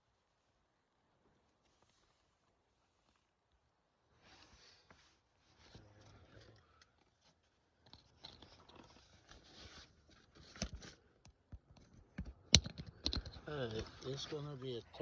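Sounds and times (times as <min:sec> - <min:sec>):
plastic crackling and scraping: 0:05.6 - 0:14.7.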